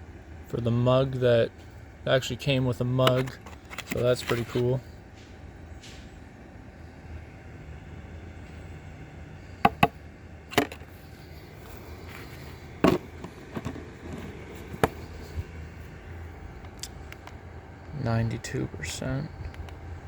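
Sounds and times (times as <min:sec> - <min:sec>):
steady low hum: 0:00.0 - 0:20.0
plastic clicks and knocks: 0:09.7 - 0:10.0.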